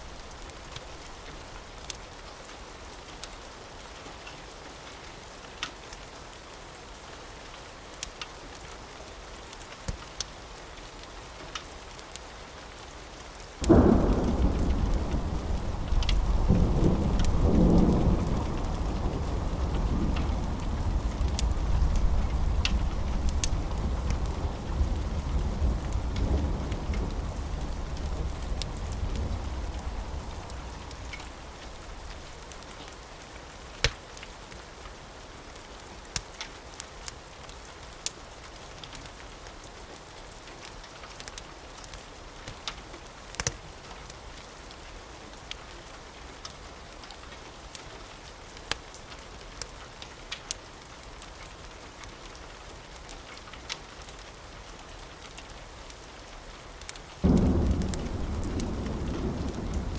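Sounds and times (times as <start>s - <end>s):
steady rain: 0.0s - 59.9s
thunder rumble: 13.6s - 32.6s, 57.2s - 59.9s.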